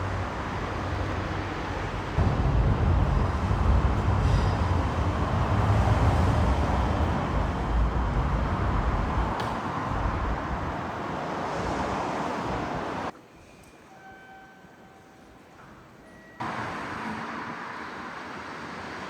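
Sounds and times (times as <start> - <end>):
passing vehicle rumble: 0.0 - 13.1.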